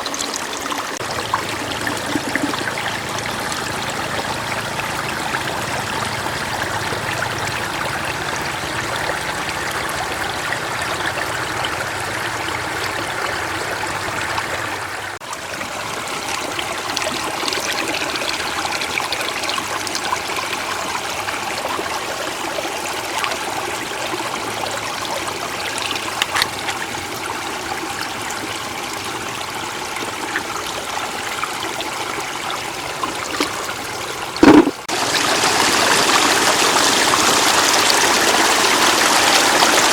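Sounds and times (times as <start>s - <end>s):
floodwater running and trickling: 0.0s - 39.9s
loud thump: 34.4s - 34.9s.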